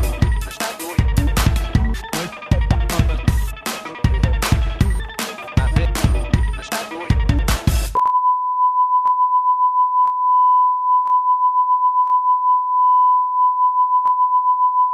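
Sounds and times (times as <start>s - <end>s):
music: 0.0s - 8.0s
steady electronic beep tone: 0.0s - 14.9s.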